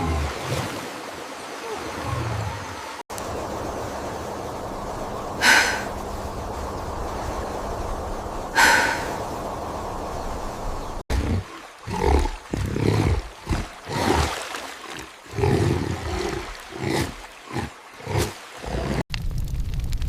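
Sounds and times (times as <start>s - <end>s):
animal roars and growls: 15.0s - 19.1s.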